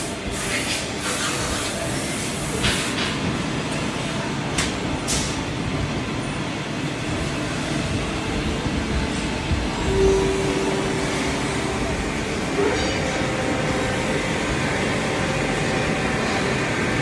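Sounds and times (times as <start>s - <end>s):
lathe running: 9.5s - 17.0s.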